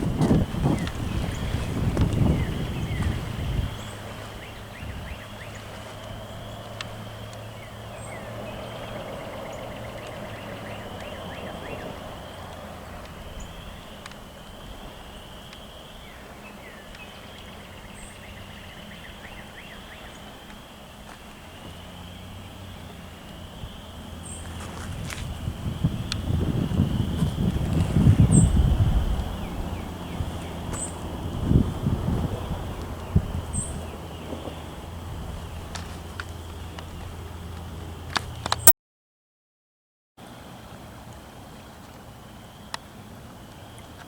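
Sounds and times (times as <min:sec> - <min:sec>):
wind rumble on microphone: 0:00.0 - 0:20.4, 0:21.3 - 0:38.7
songbird trilled song: 0:00.0 - 0:34.8.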